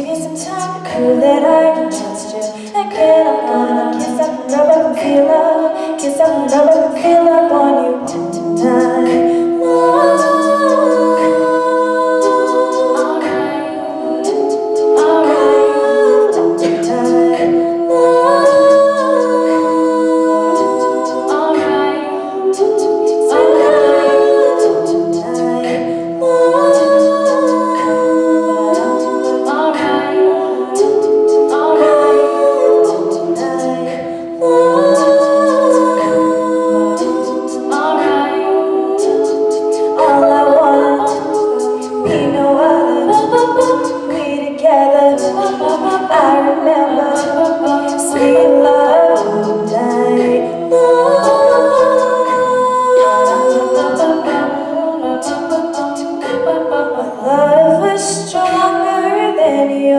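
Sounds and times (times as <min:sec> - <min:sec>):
beatboxed percussion: 0:00.0 - 0:59.9
vocal group singing in harmony: 0:00.0 - 0:59.9.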